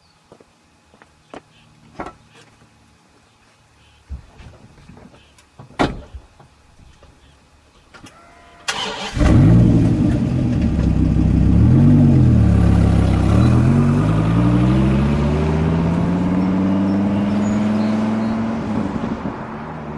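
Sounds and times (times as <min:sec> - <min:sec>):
car engine revving and accelerating: 0:09.1 - 0:19.9.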